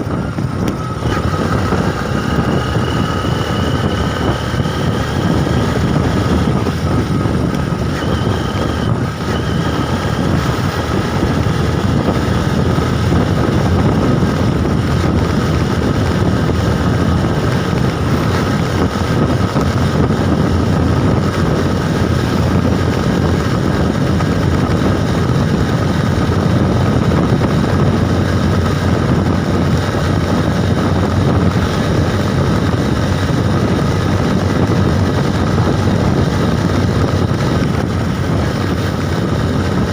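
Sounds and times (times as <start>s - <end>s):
vehicle drone with whine: 0.0s - 39.9s
wind rush on microphone: 0.0s - 39.9s.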